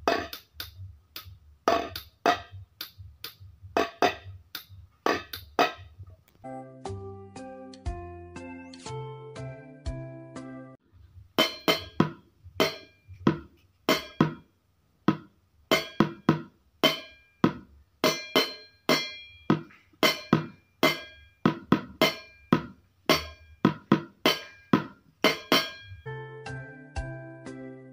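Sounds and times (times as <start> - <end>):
sharp taps on resonant objects: 0.0 - 6.0, 11.4 - 14.5, 15.1 - 26.1.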